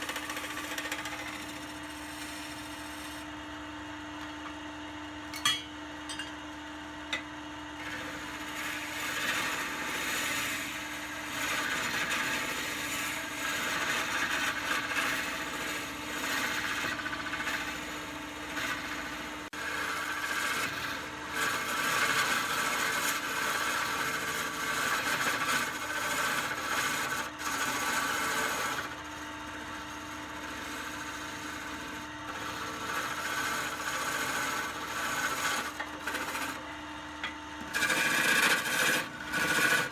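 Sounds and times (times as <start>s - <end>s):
tool scraping spinning wood: 0.0s - 3.3s, 7.1s - 39.9s
lathe motor hum: 0.0s - 5.0s, 7.1s - 39.9s.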